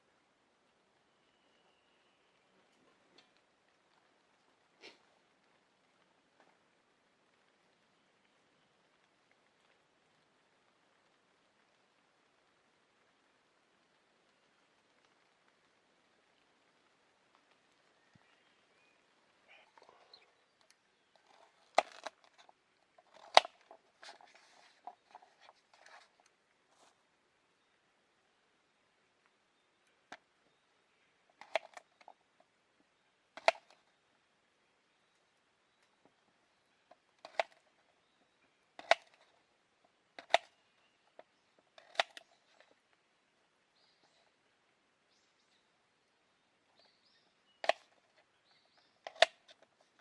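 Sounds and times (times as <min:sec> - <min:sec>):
faint small ticks: 0:02.7 - 0:27.1
handling taps and rustles: 0:20.7 - 0:27.0
sharp clicks: 0:33.4 - 0:33.8, 0:37.2 - 0:37.7, 0:38.8 - 0:39.3, 0:40.2 - 0:40.6, 0:41.2 - 0:42.7.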